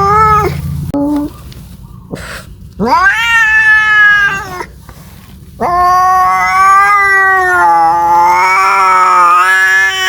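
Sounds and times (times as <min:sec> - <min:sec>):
cat yowling: 0:00.0 - 0:00.6, 0:02.8 - 0:04.8, 0:05.6 - 0:10.0.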